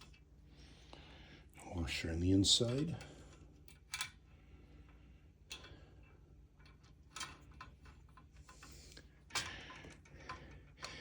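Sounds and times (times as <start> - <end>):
clicks and knocks of screws: 2.7 - 4.2, 5.5 - 5.8, 6.6 - 11.0.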